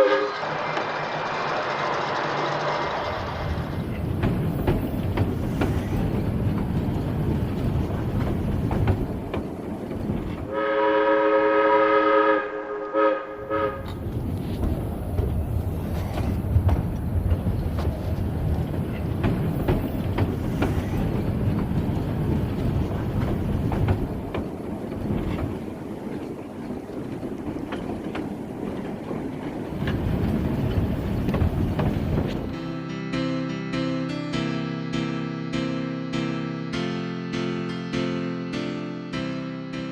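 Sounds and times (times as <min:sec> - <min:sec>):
locomotive warning horn: 0:00.0 - 0:00.5, 0:10.5 - 0:14.0
train rumbling on rails: 0:00.0 - 0:39.9
wheels clicking over rail joints: 0:00.1 - 0:10.6, 0:13.6 - 0:32.6.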